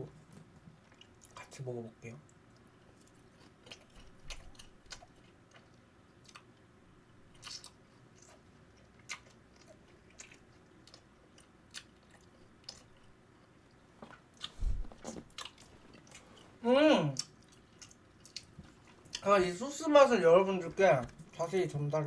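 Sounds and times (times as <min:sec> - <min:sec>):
person chewing crunchy food: 0:02.5 - 0:06.6, 0:07.3 - 0:16.6, 0:17.2 - 0:19.2.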